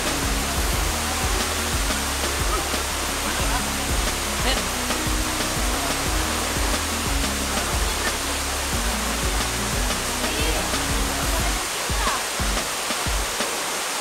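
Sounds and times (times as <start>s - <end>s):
background music with bass and beat: 0.0s - 13.5s
waterfall rushing: 0.0s - 14.0s.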